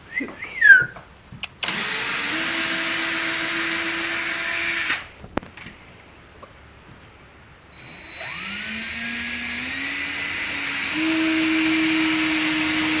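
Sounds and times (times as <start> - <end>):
electric motor whine: 7.8 - 13.0.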